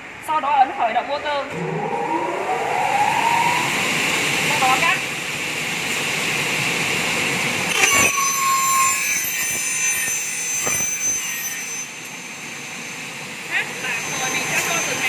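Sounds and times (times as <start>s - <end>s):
circular saw cutting aluminium: 7.6s - 15.0s.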